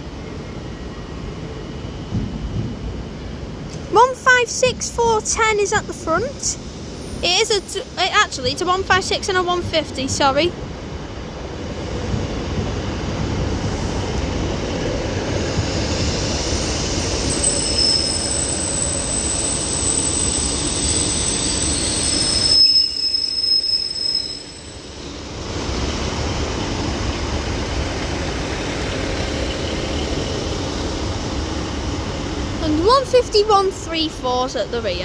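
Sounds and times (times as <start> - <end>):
train rail rumble: 0.0 - 35.0
high-pitched wheel squeal: 16.3 - 25.2.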